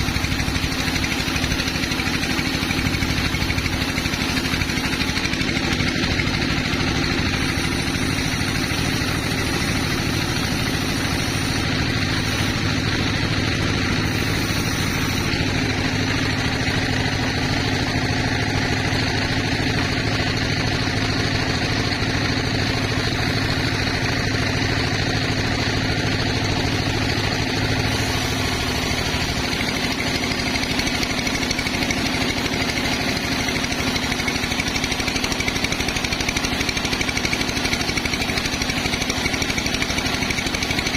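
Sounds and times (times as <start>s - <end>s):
sawmill machinery pulsing: 0.0s - 40.9s.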